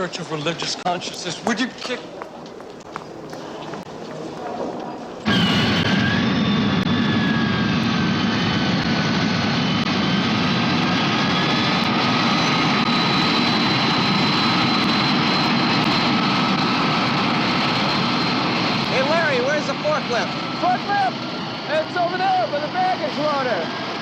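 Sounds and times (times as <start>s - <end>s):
jet engine roaring and whining: 4.8s - 24.0s.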